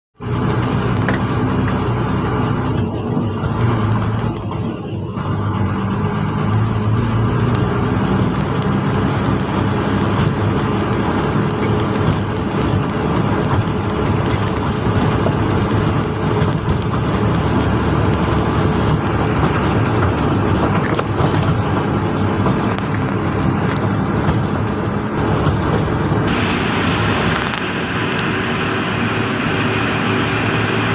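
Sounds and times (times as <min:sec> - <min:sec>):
heavy vehicle engine running: 0:00.2 - 0:30.9
road noise: 0:00.2 - 0:30.9
faint high whine: 0:26.3 - 0:30.9.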